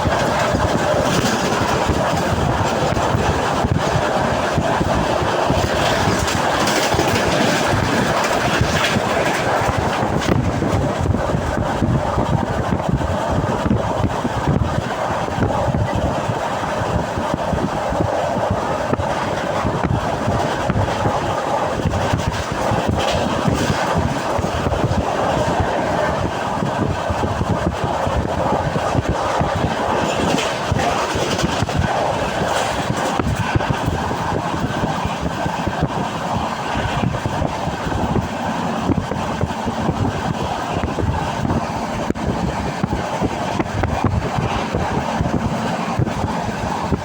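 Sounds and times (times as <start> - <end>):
train clicks and rattles: 0.0 - 47.0
train wheels rumbling on rails: 0.0 - 47.0.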